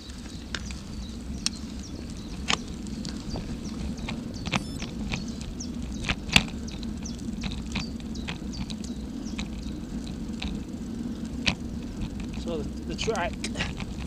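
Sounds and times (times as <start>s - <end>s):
steady low rumble: 0.0s - 14.0s
short high clicks and chirps: 4.5s - 4.9s.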